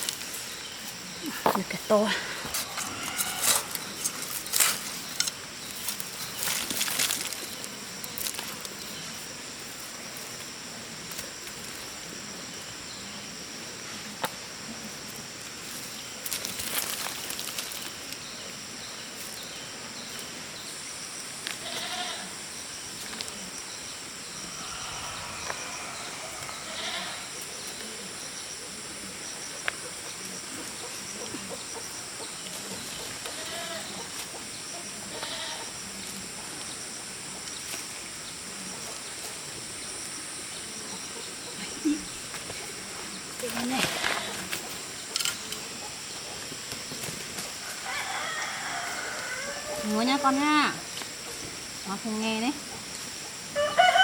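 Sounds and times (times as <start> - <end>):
rustling: 0.0 - 12.0, 15.0 - 18.2
goats bleating: 21.6 - 22.3, 26.3 - 27.4, 35.2 - 35.6.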